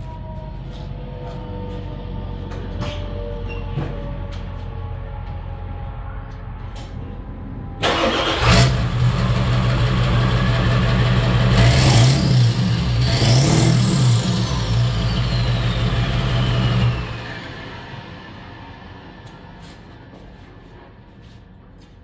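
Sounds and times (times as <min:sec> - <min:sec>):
diesel engine cranking and revving: 0:07.8 - 0:19.1
turbo whistle winding down: 0:13.0 - 0:17.6.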